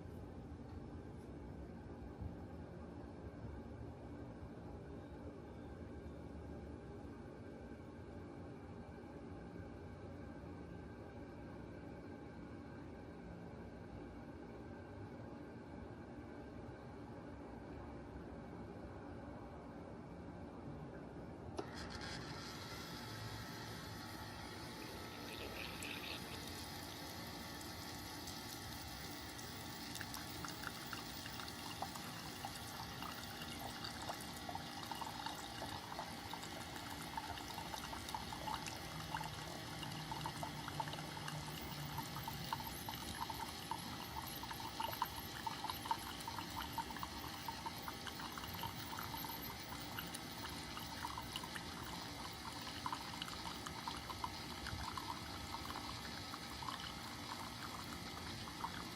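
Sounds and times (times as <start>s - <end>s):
faint watery hiss: 21.6s - 58.9s.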